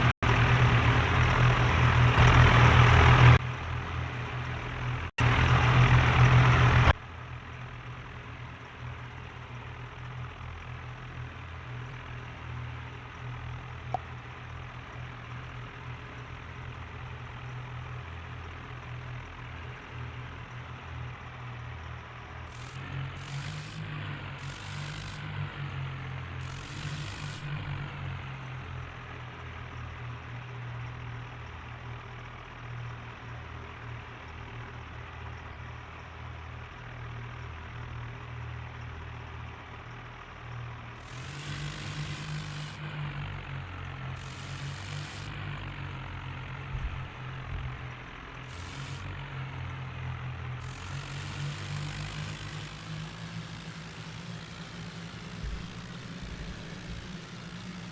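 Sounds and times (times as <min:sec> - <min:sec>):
diesel tractor engine droning: 0:00.0 - 0:57.9
hissy noise surges: 0:50.7 - 0:57.9.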